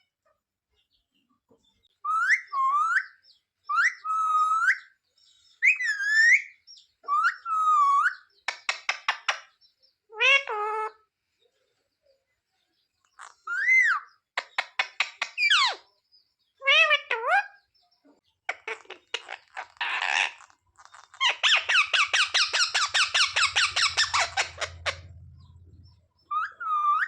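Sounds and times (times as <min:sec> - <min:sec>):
parrot whistled calls: 0:21.2 - 0:25.1.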